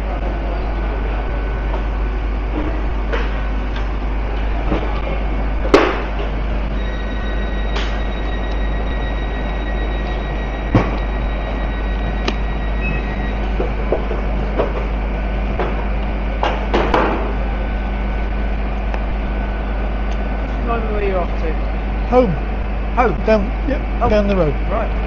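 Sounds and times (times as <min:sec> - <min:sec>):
high whining tones: 0:06.2 - 0:15.5.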